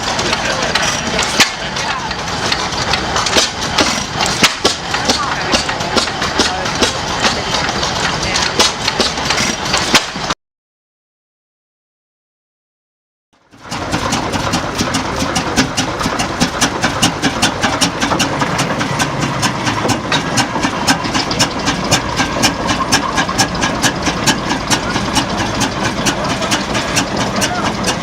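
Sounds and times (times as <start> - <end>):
sharp engine clicks: 0.0 - 10.3, 13.4 - 28.0
antique engine running: 0.0 - 10.4, 13.4 - 28.0.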